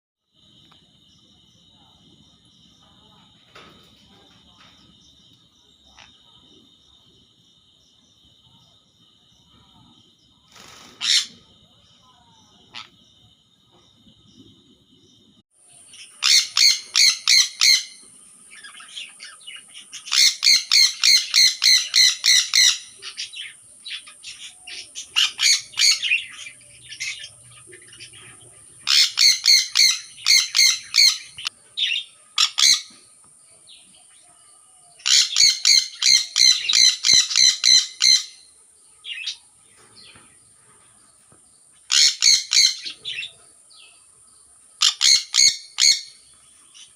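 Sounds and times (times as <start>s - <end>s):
parrot shrill chirps: 16.2s - 18.0s, 28.9s - 32.9s, 35.0s - 38.5s, 41.9s - 43.0s, 44.8s - 46.2s.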